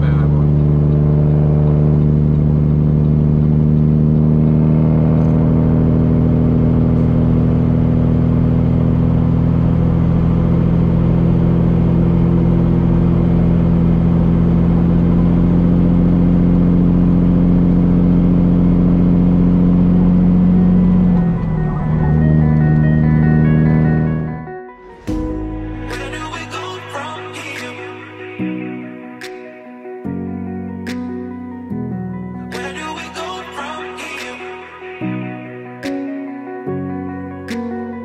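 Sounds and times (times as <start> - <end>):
truck diesel engine droning: 0.0 - 24.6.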